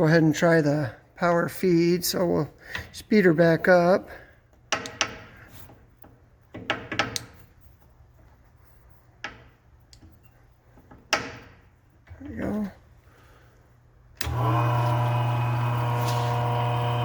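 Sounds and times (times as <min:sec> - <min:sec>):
lathe running with low hum: 0:14.2 - 0:17.0.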